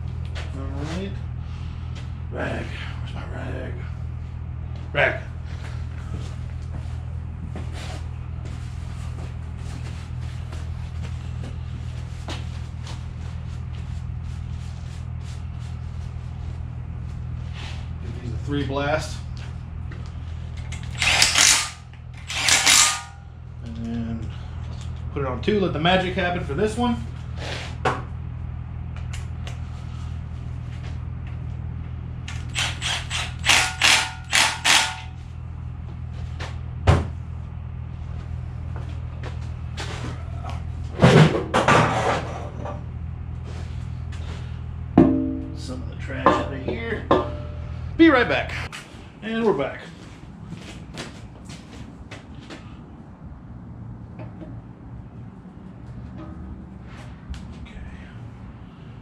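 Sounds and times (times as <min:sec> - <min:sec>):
shop equipment humming: 0:00.0 - 0:59.0
parts clicking and scraping: 0:19.4 - 0:23.8, 0:32.2 - 0:35.2
tool handling clicks: 0:20.6 - 0:23.1
impact wrench bursts: 0:20.6 - 0:23.2, 0:32.3 - 0:35.2.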